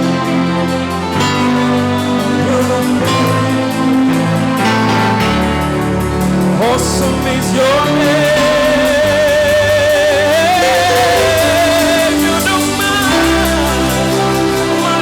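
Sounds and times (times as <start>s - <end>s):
bass: 0.0s - 15.0s
keyboard chords: 0.0s - 15.0s.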